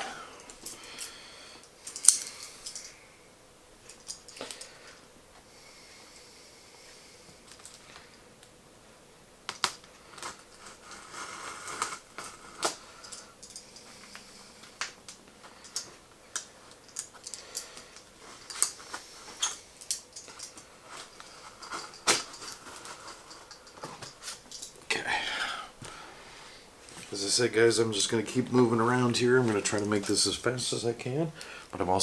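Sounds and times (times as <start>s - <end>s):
tape and cardboard rustling: 9.5s - 12.9s, 14.8s - 24.8s.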